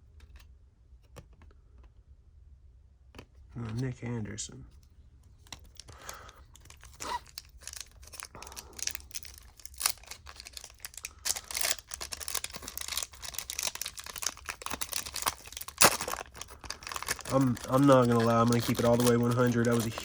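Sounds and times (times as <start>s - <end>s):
cards and wrapper rustling: 5.3s - 20.0s.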